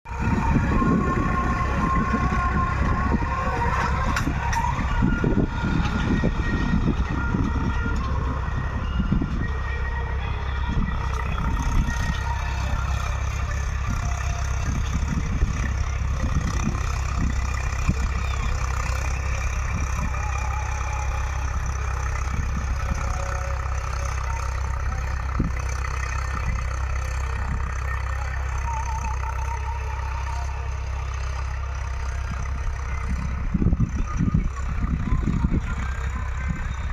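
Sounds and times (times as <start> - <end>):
tractor engine rumbling: 0.0 - 36.9.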